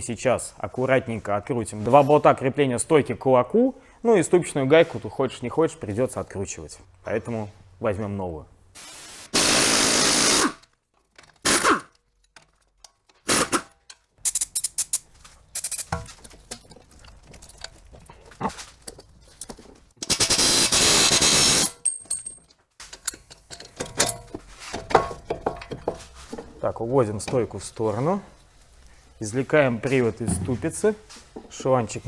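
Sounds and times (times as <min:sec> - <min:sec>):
impact wrench bursts: 0:08.8 - 0:10.6, 0:11.4 - 0:12.0, 0:13.3 - 0:15.0, 0:15.6 - 0:16.0, 0:20.0 - 0:21.8
clinks and knocks of tools: 0:10.9 - 0:13.2, 0:13.8 - 0:20.2, 0:21.7 - 0:27.5.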